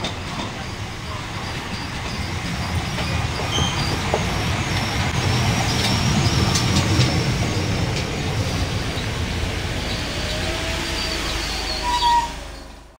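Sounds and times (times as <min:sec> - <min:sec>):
train wheels rumbling: 0:00.0 - 0:13.0
faint high squeaks: 0:02.9 - 0:04.0, 0:09.9 - 0:12.8.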